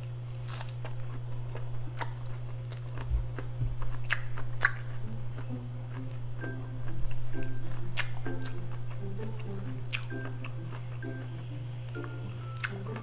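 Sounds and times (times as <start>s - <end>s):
chewing corn on the cob: 0.0s - 13.0s
steady low hum: 0.0s - 13.0s
wet mouth smacks and clicks: 4.1s - 4.9s, 8.0s - 8.6s.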